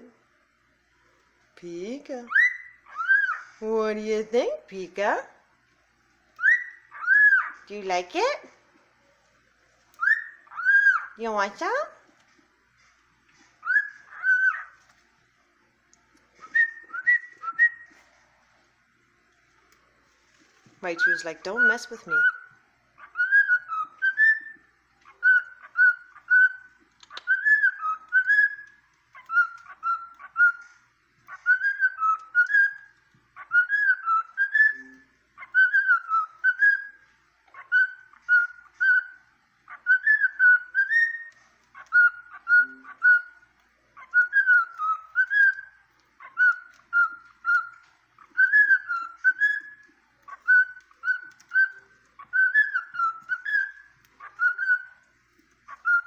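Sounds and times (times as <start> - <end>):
cockatiel whistling a tune: 2.3 - 3.6, 6.4 - 7.7, 9.9 - 11.8, 13.6 - 14.8, 16.3 - 18.1, 20.9 - 55.1, 55.7 - 56.0.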